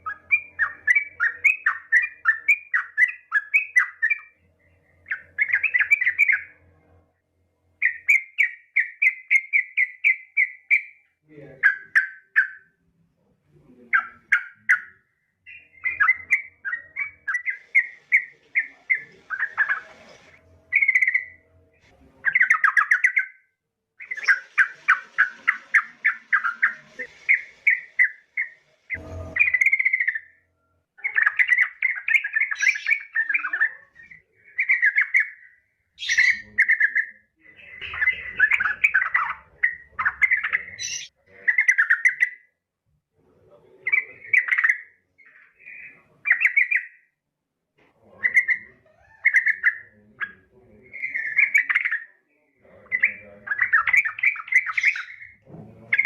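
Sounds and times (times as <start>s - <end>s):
bulbul chattering: 5.0s - 6.6s, 13.6s - 21.5s, 22.1s - 23.4s, 24.0s - 30.4s, 31.0s - 42.4s, 48.0s - 56.0s.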